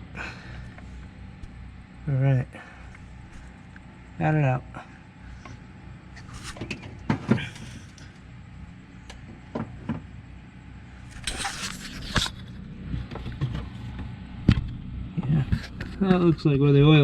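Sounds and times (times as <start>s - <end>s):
rough scraping rustle: 6.1s - 6.7s, 11.0s - 14.0s.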